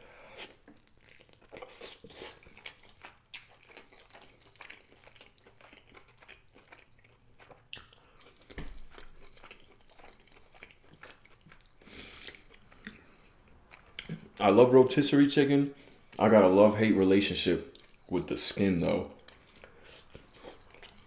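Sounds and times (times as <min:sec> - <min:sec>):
chewing and biting chicken: 0:00.3 - 0:14.3, 0:19.3 - 0:21.0.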